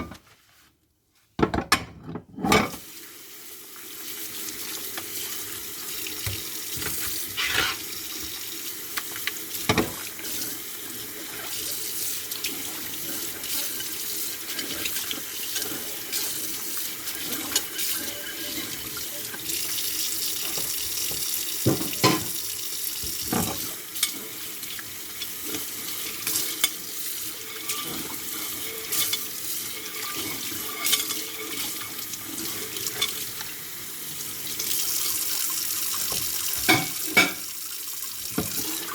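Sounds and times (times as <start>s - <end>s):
dishes clinking against sink: 1.4s - 2.8s, 20.4s - 22.4s, 36.1s - 37.5s
tap water running into sink: 3.6s - 38.9s.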